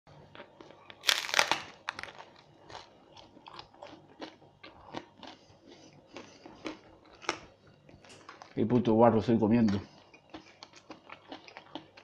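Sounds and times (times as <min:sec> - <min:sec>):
crunchy chewing: 0:00.1 - 0:08.9, 0:09.5 - 0:12.0
biting into pizza crunch: 0:00.4 - 0:08.7.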